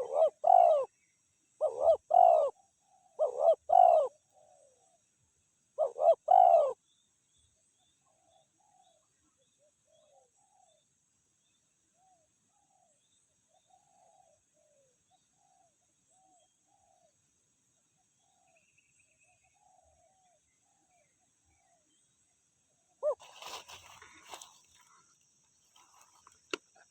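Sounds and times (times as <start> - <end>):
doves cooing: 0.0 - 0.9, 1.6 - 4.9, 5.8 - 6.8, 23.0 - 25.0.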